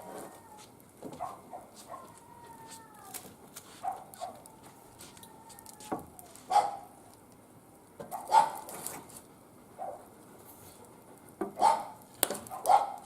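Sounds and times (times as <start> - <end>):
wood fire crackling: 0.0 - 13.0
dog barking: 1.1 - 2.1, 3.8 - 4.4, 6.5 - 6.9, 8.1 - 8.7, 9.8 - 10.1, 11.6 - 13.0.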